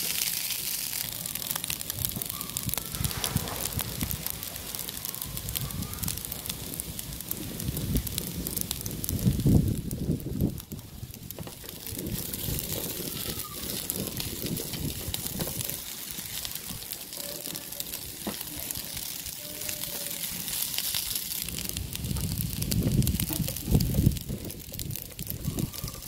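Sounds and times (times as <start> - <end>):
rice sizzling in a pan: 0.0 - 26.0.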